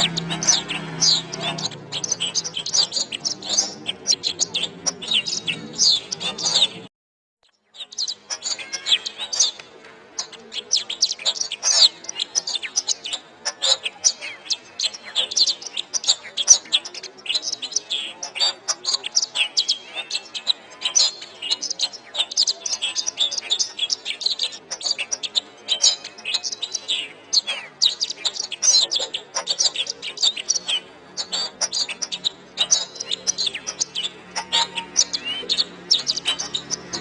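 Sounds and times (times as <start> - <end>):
canary singing: 0.0 - 6.9, 7.5 - 37.0.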